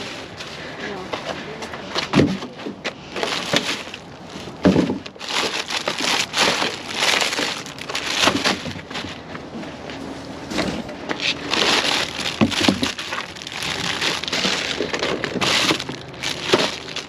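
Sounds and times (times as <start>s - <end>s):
plastic bags rustling and crinkling: 0.0s - 9.3s, 10.4s - 17.0s
knocks and thuds: 2.0s - 9.2s, 11.7s - 17.0s.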